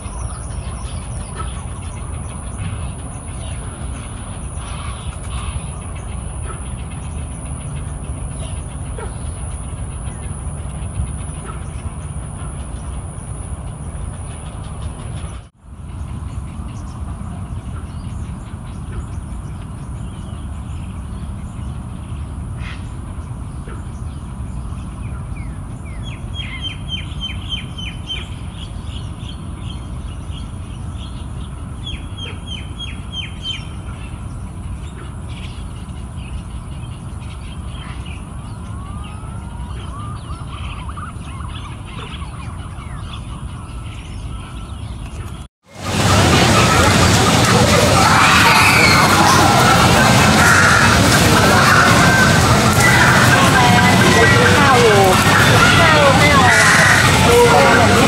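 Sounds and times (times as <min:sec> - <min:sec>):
steady low rumble: 0:00.0 - 0:31.9, 0:45.7 - 0:58.0
wild birds calling: 0:00.0 - 0:58.0.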